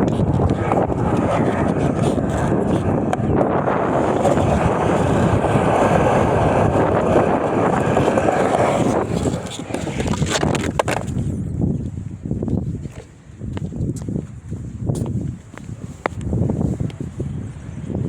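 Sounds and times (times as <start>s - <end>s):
skateboard clacks: 0.0s - 11.3s
skateboard wheels rolling on concrete: 0.0s - 18.0s.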